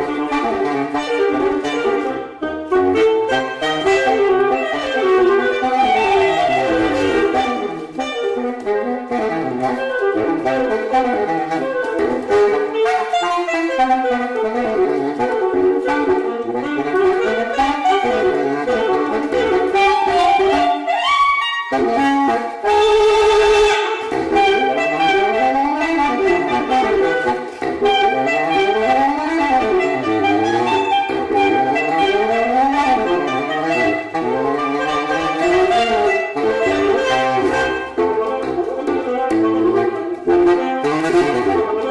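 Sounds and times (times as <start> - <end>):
saxophone melody: 0.0 - 41.9.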